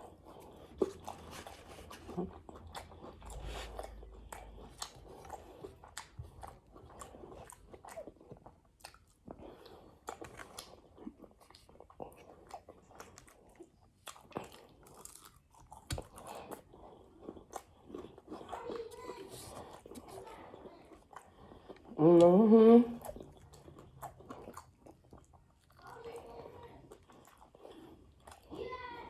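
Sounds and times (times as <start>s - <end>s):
crunch of bacon: 0.0s - 22.0s
person chewing and biting food: 0.0s - 28.6s.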